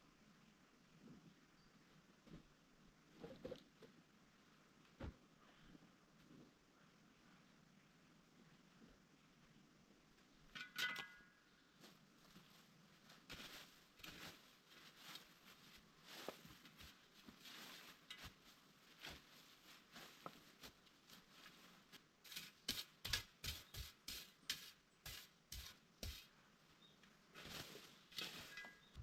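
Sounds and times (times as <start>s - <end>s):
leaves and twigs crackling: 11.8s - 22.0s, 27.3s - 29.0s.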